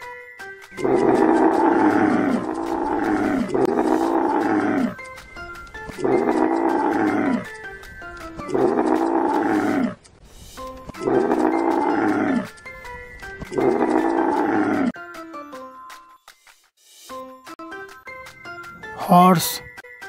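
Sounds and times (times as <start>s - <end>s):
light background music: 0.0s - 9.6s, 10.3s - 20.0s
camel bellowing: 0.8s - 5.0s, 5.8s - 7.6s, 8.4s - 10.0s, 10.9s - 12.6s, 13.4s - 15.0s.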